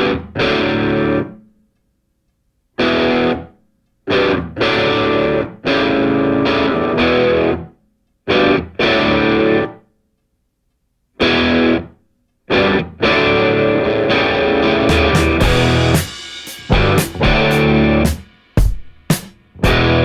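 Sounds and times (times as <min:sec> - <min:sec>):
distorted electric guitar chords: 0:04.1 - 0:07.7, 0:12.5 - 0:18.2, 0:19.6 - 0:20.0.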